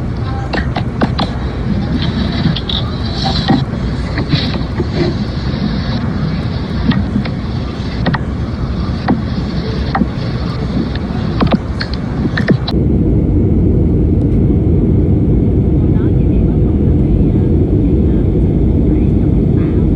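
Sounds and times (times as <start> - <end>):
aircraft roaring: 0.0 - 19.9
sharp clicks: 0.5 - 12.7.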